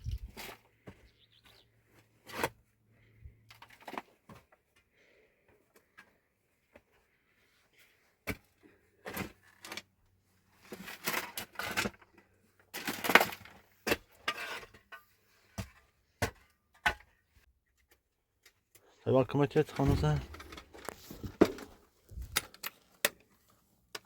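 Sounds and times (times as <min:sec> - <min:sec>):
scraping and rustling: 0:19.7 - 0:22.6.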